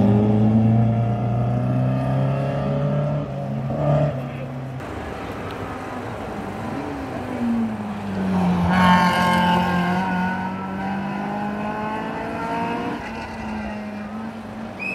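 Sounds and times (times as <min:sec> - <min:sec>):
rally car engine revving: 0:07.8 - 0:14.4.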